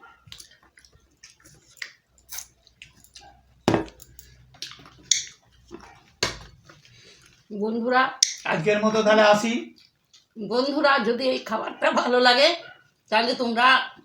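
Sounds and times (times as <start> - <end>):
chewing with crunches: 0.0 - 7.5, 9.7 - 10.4.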